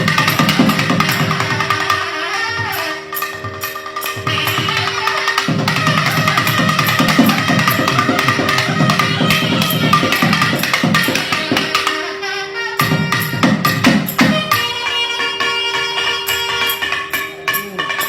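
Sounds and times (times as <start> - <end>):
wind instrument melody: 0.0 - 18.0
dense drumming: 4.3 - 11.7.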